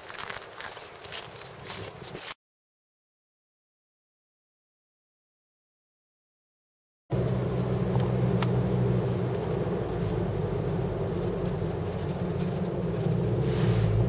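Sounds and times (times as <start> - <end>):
car engine hum: 7.1 - 14.0
road noise: 7.1 - 14.0.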